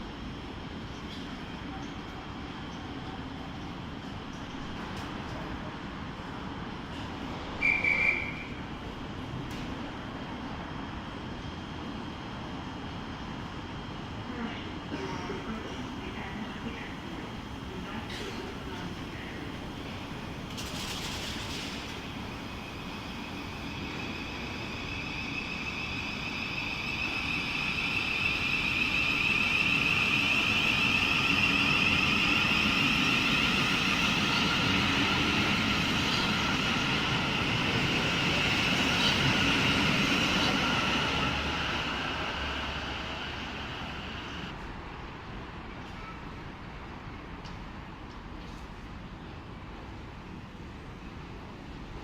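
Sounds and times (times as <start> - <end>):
train rumble: 0.0 - 52.0
electric train whine: 18.8 - 44.6.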